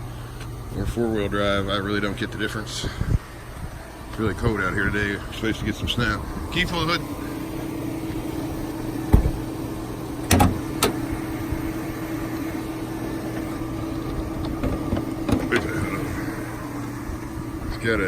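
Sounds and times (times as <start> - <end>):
car engine idling: 0.0 - 18.0
low thump: 9.1 - 9.4
sharp knocks of car hood: 9.1 - 9.4.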